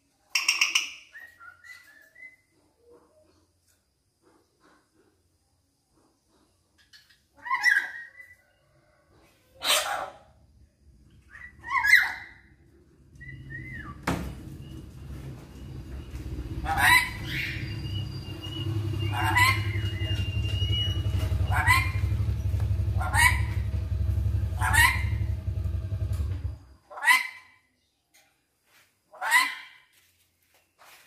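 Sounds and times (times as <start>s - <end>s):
parrot shrill calls: 7.4s - 8.4s, 11.3s - 12.6s, 16.6s - 22.2s, 23.0s - 23.6s, 24.6s - 25.3s, 26.9s - 27.6s
steady low rumble: 12.7s - 26.6s.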